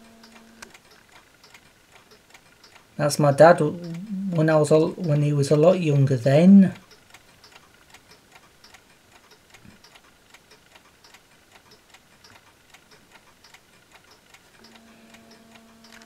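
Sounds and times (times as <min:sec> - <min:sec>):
mechanical clocks ticking: 0:00.0 - 0:16.0
faint steady tone: 0:03.0 - 0:06.8.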